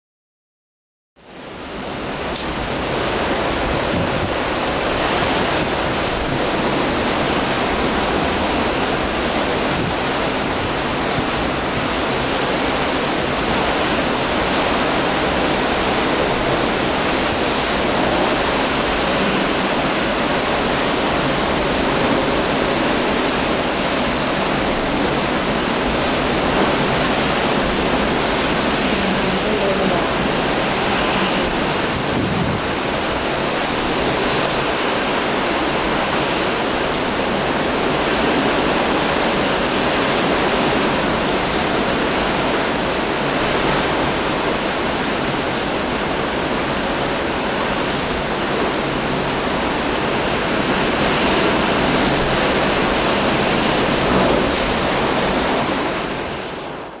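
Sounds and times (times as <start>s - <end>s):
loud rushing hurricane wind: 1.2s - 57.0s
wind buffeting microphone: 1.7s - 57.0s.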